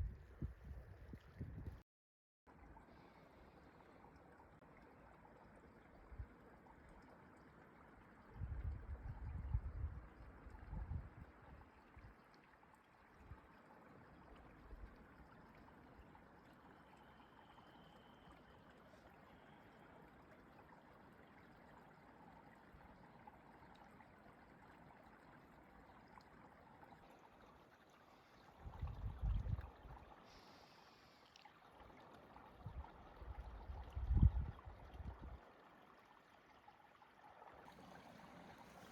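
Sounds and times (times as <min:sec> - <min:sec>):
running water: 0:02.5 - 0:38.9.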